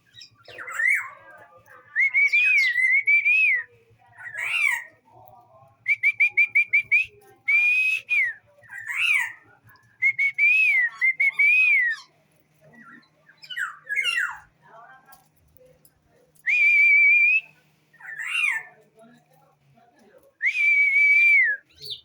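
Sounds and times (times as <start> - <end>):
songbird singing whistled phrases: 1.9 - 4.8, 5.8 - 9.3, 10.0 - 12.1, 16.4 - 18.6, 20.4 - 22.0.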